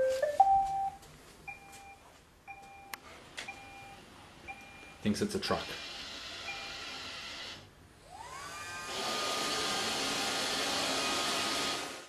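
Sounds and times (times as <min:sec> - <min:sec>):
robot vacuum running: 0:05.5 - 0:12.0.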